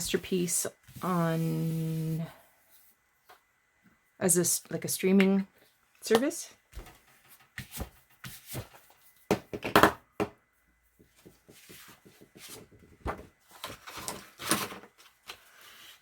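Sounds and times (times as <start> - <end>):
handling and rubbing sounds: 0.0 - 3.0, 11.0 - 16.0.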